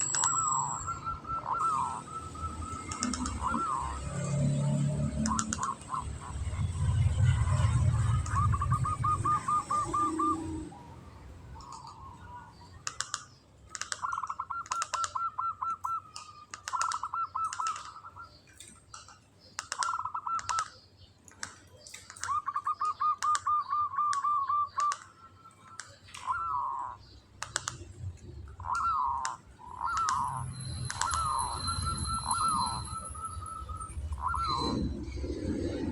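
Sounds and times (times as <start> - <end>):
dove cooing: 0.0 - 12.5, 28.3 - 35.9
dove trilling: 0.0 - 20.8, 21.4 - 35.9
sharp clicks: 2.6 - 3.6, 5.1 - 5.9, 12.8 - 23.5, 24.1 - 26.5, 27.4 - 31.4.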